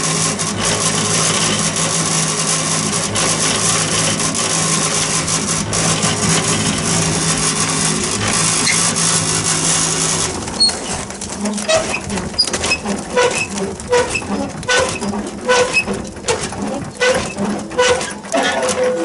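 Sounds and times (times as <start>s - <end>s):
machine running with low hum: 0.0s - 19.0s
mechanical squeak and knock: 8.6s - 9.0s, 10.5s - 19.0s.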